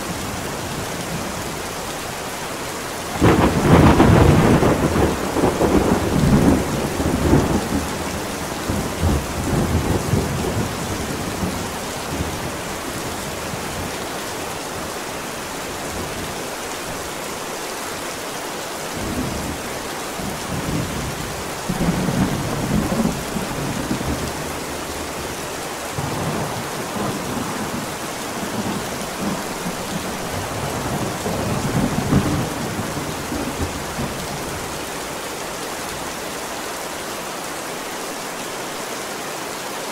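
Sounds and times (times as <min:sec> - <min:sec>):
steady rain: 0:00.0 - 0:39.9
rolling thunder: 0:03.1 - 0:12.5, 0:25.9 - 0:34.8.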